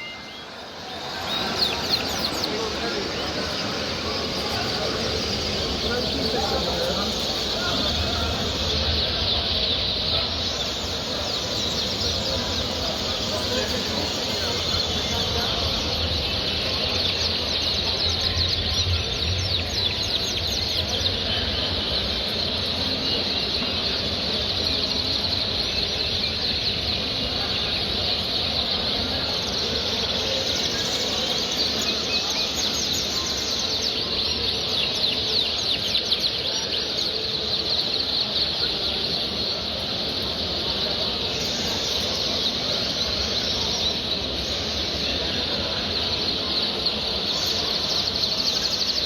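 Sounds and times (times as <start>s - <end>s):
many birds chirping and singing: 0.0s - 49.0s.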